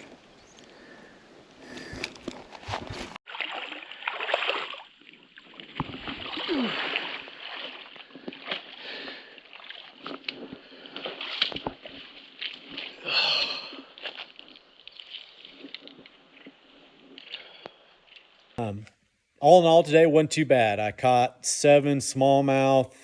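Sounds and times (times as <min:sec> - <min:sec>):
creek water splashing: 0:01.8 - 0:18.6.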